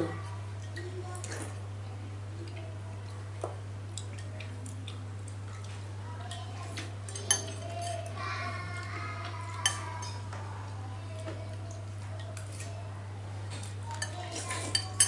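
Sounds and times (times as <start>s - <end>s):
utensils clinking against a bowl: 5.6s - 10.5s, 11.2s - 12.9s, 13.5s - 15.0s.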